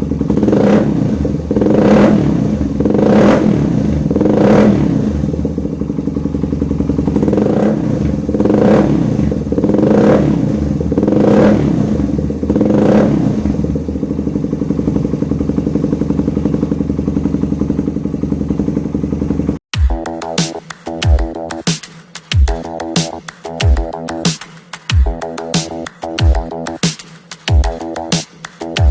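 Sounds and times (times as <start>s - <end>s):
motorcycle engine revving and idling: 0.0s - 28.9s
electronic music: 19.7s - 28.9s.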